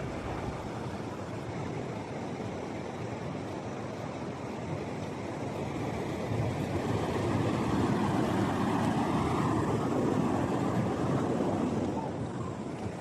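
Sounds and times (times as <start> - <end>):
ocean wave washing up: 0.0 - 2.6.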